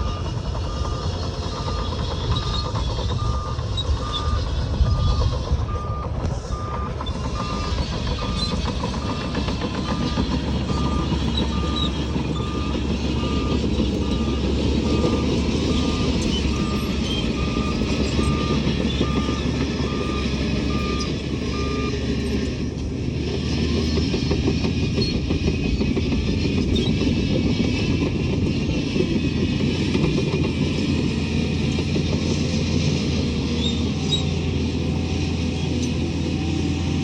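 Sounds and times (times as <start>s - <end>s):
reversing alarm beeping: 0.0s - 22.5s
heavy diesel machinery running: 0.0s - 37.0s.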